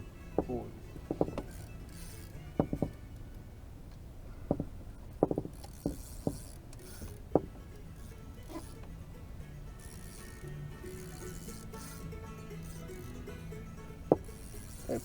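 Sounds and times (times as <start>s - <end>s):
dull knocks and taps: 0.4s - 1.5s, 2.6s - 3.0s, 4.5s - 6.4s, 7.3s - 7.6s, 14.1s - 14.3s.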